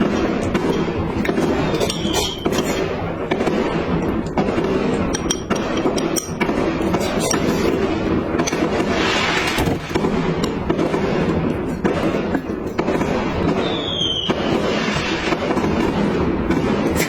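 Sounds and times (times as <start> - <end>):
utensils clinking against dish: 0.0 - 2.9, 5.0 - 7.8.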